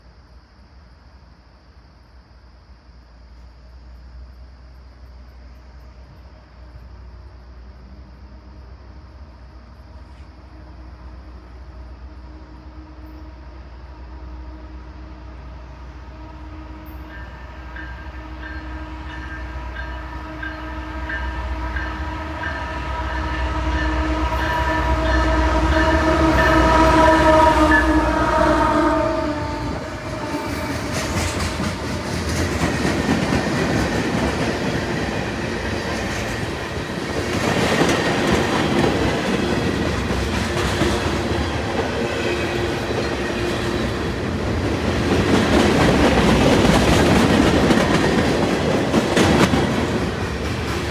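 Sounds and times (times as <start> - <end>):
rumble of passing freight train: 0.0 - 50.9
train air horn blast: 10.1 - 31.8.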